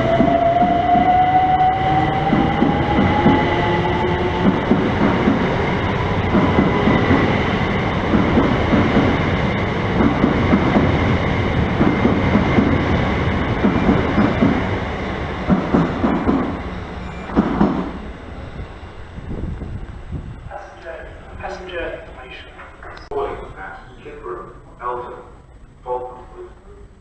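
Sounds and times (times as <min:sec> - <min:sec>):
train motor whine: 0:00.0 - 0:20.4
train wheels clattering over rail joints: 0:04.3 - 0:18.0.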